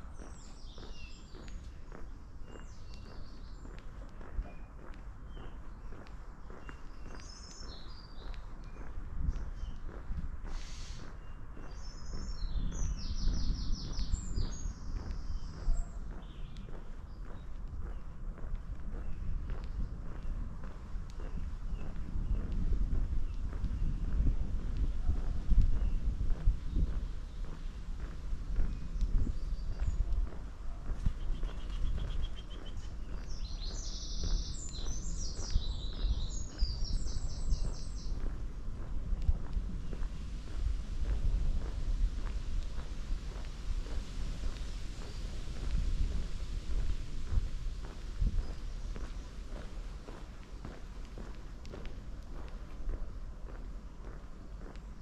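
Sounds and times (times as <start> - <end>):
songbird singing: 0.0 - 55.0
low rumble: 38.0 - 51.8.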